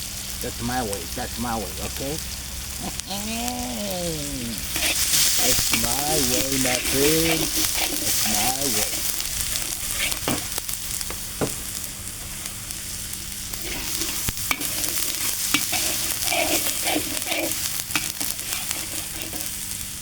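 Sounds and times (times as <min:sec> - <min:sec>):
food sizzling in hot oil: 0:00.0 - 0:20.0
utensil stirring and scraping pan: 0:04.5 - 0:10.7, 0:13.5 - 0:20.0.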